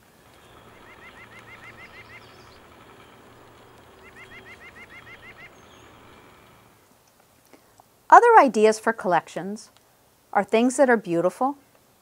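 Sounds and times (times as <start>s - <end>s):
bird calling in rising notes: 0.0s - 6.8s
faint low hum: 0.0s - 6.9s.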